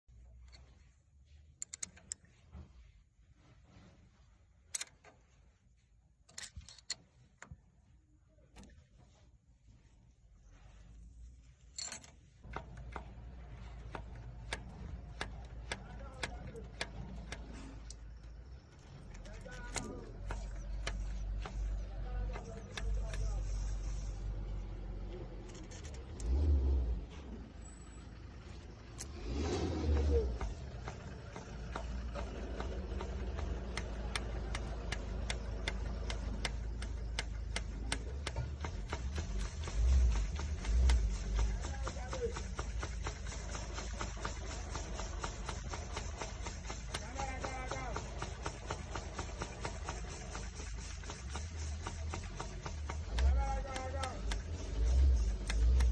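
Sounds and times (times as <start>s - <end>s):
sharp clicks: 1.6s - 2.3s, 11.8s - 26.8s, 28.4s - 55.9s
generator low rumble: 7.2s - 55.9s
sharp metallic clatter: 11.6s - 24.6s, 25.4s - 55.9s.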